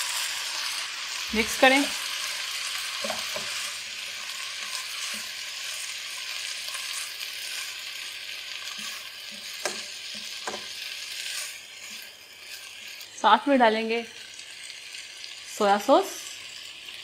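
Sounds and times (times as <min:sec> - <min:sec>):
food sizzling in oil: 0:00.0 - 0:17.0
spatula knocking pan: 0:03.0 - 0:03.7, 0:08.8 - 0:10.8.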